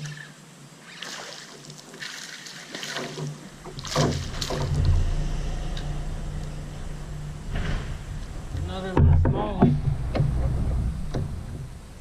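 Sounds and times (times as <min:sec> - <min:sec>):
water splashing: 0:00.0 - 0:12.0
low rumble: 0:03.5 - 0:12.0.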